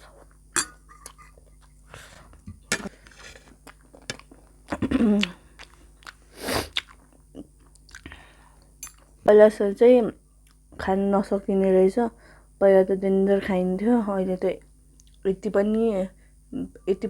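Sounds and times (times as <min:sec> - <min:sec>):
chewing and crunching: 0:01.0 - 0:09.2.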